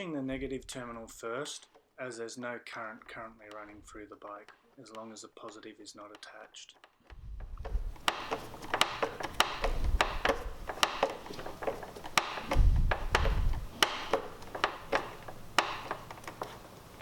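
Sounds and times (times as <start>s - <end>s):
screwdriver clicking on metal bolt: 7.9s - 16.6s
low thudding from handling: 12.4s - 13.7s.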